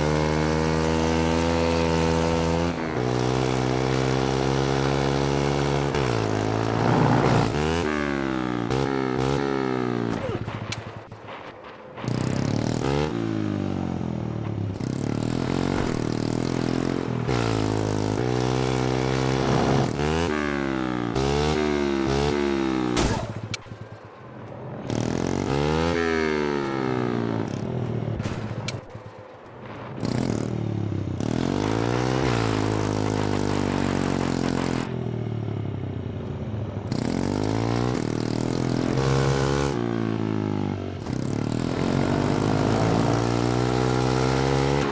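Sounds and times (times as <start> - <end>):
small engine revving: 0.0 - 10.4, 15.2 - 22.8, 41.0 - 44.9.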